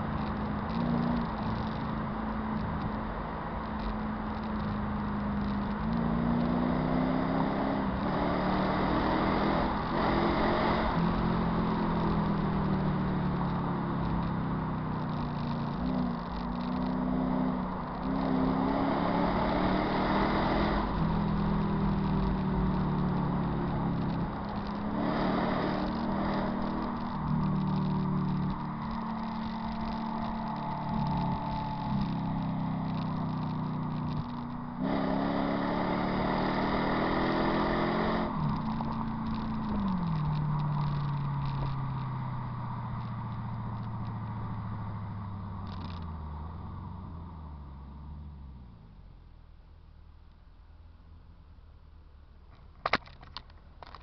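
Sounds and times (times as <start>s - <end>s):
car engine revving through gears: 3.7s - 46.9s.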